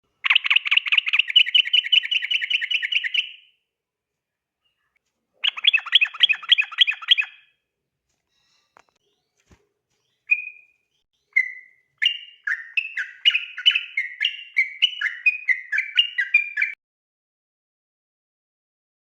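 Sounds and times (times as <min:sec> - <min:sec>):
bulbul singing: 0:00.2 - 0:03.6, 0:05.4 - 0:07.6, 0:10.0 - 0:16.8.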